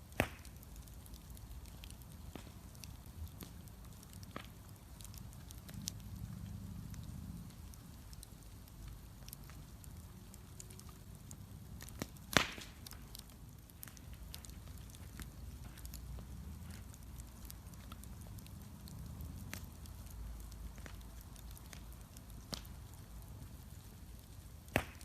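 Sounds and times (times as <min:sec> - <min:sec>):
bonfire crackling: 0:00.0 - 0:25.0
small pops from fire: 0:00.0 - 0:25.0
loud sharp pop: 0:00.2 - 0:00.5, 0:12.3 - 0:12.8, 0:24.7 - 0:25.0.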